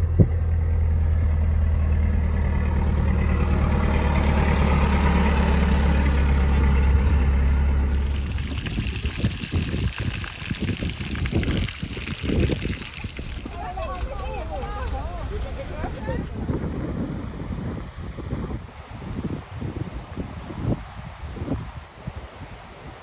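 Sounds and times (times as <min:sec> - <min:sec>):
engine idling: 0:00.0 - 0:16.6.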